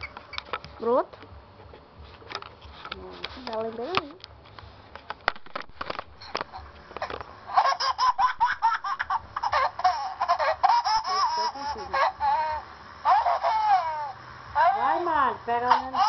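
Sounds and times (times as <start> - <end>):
baby laughter ringtone: 7.5 - 14.8, 15.7 - 16.0.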